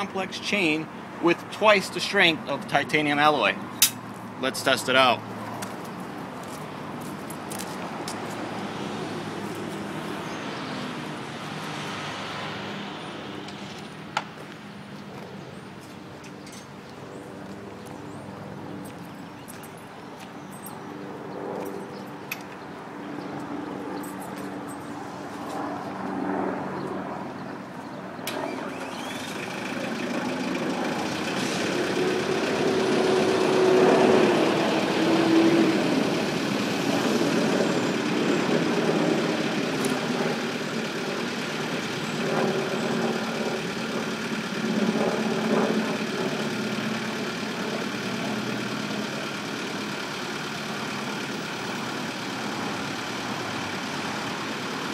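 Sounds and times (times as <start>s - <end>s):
tractor diesel engine running: 28.3s - 54.9s.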